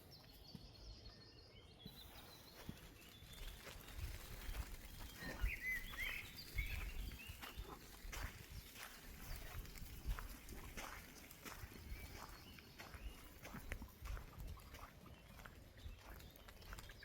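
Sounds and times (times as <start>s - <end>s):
small birds chirping: 0.0s - 17.0s
footsteps rustling on forest floor: 1.9s - 17.0s.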